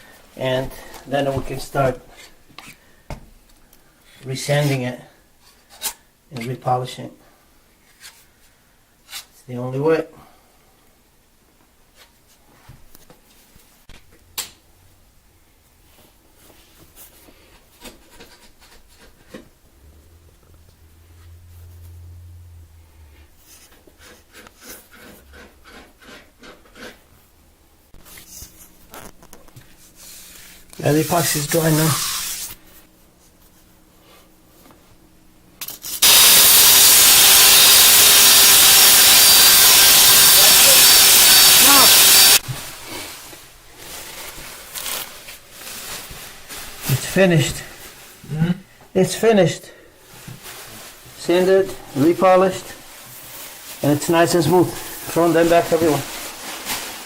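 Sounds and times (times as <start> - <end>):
electric stone polisher grinding: 36.0 - 42.4.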